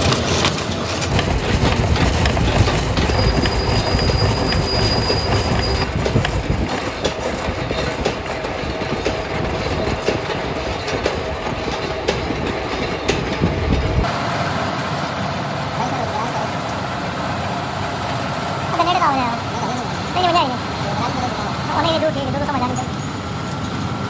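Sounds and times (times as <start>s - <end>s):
factory machinery rumbling: 0.0s - 24.0s
high whine: 13.7s - 21.4s.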